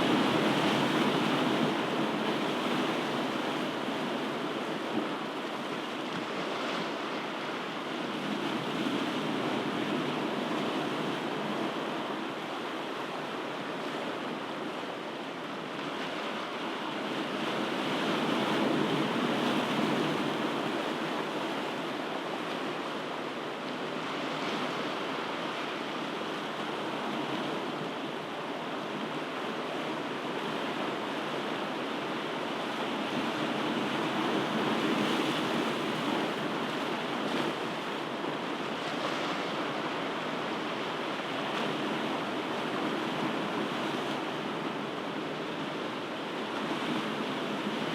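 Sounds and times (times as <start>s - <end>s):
ocean surf washing on shore: 0.0s - 47.9s.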